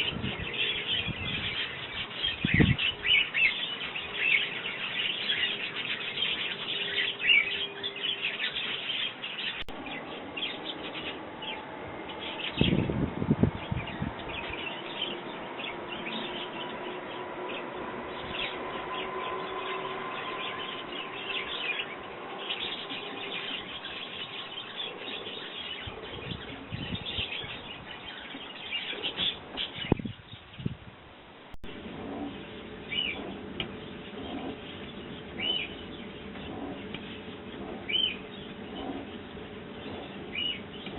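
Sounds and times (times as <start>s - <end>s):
sparrows chirping: 0.0s - 30.8s, 31.7s - 40.9s
low rumble: 9.7s - 23.9s.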